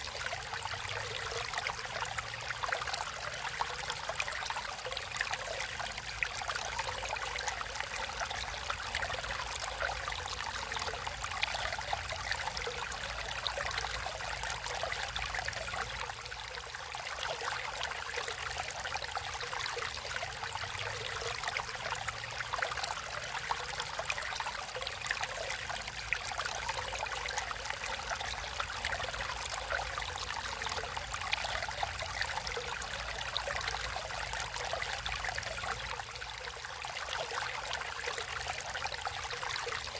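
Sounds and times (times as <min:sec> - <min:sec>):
stream trickling over stones: 0:00.0 - 0:39.9.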